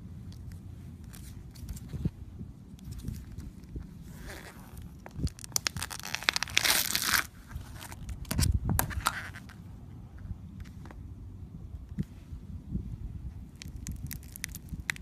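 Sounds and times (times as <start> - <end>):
crunchy slime crackling: 4.2 - 8.4, 13.5 - 15.0.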